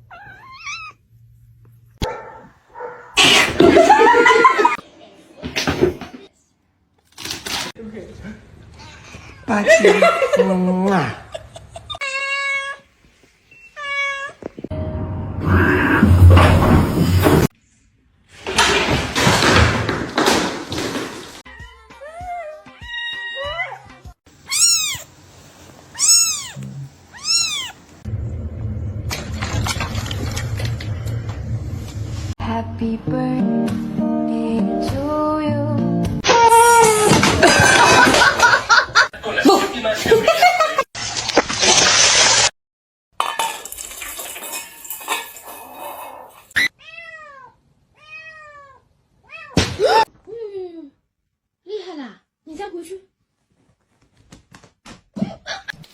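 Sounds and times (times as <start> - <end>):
cat meowing: 0.0 - 1.0, 12.0 - 12.8, 13.7 - 14.5, 21.5 - 25.1, 25.9 - 27.8, 46.6 - 49.6
clattering with knocks: 18.4 - 21.4
low rumbling noise: 28.1 - 32.4.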